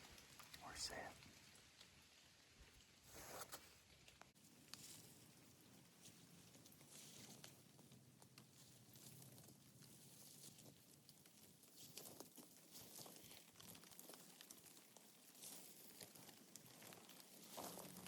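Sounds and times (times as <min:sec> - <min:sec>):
soft rustles: 0:03.0 - 0:18.0
small ticks: 0:06.0 - 0:18.0.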